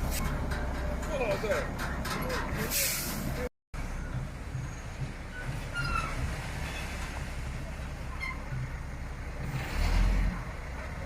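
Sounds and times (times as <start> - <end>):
heavy vehicle engine rumbling: 0.0 - 11.0.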